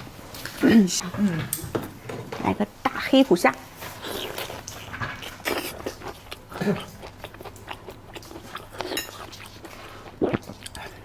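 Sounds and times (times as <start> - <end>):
chewing with crackly crunches: 3.8 - 11.0.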